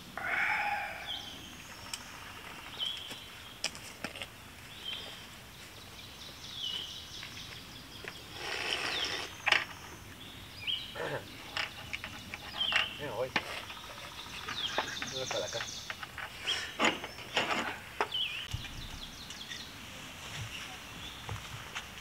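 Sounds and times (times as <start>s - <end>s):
bird high falling call: 0.2s - 2.7s.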